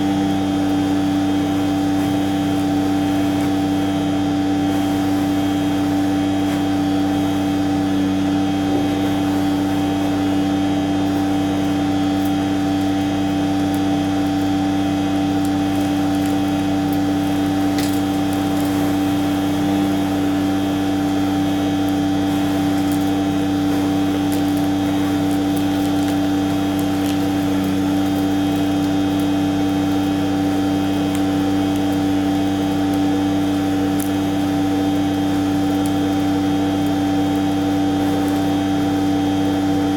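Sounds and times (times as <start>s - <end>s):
machine humming steadily: 0.0s - 39.9s.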